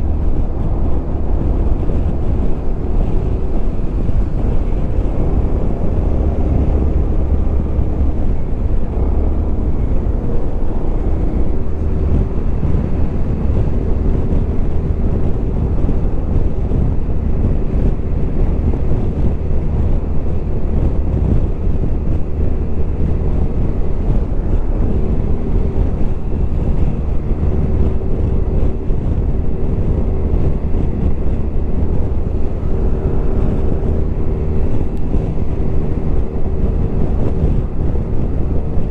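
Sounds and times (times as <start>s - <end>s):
scooter engine running: 0.0s - 38.9s
wind noise on microphone: 0.0s - 38.9s.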